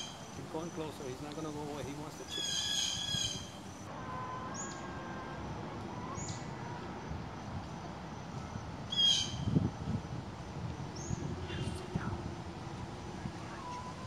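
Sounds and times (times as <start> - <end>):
loud shrill bird call: 0.0 - 0.4, 2.2 - 5.4, 8.9 - 9.5.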